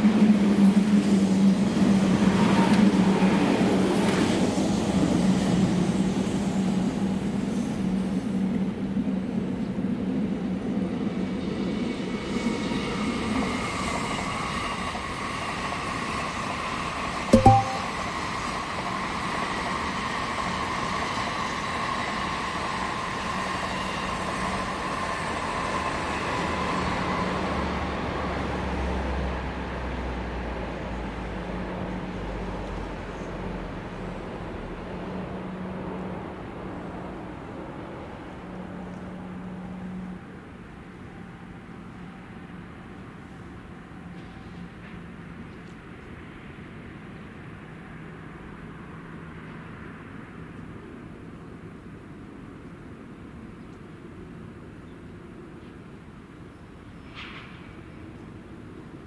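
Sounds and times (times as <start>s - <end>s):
train running past: 0.1s - 33.0s
sharp knocks: 17.3s - 18.1s.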